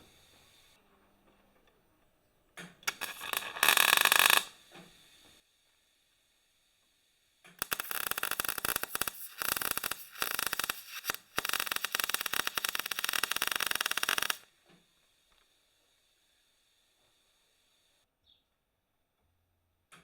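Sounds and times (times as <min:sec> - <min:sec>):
welding crackle: 0:02.9 - 0:04.6, 0:07.5 - 0:14.5.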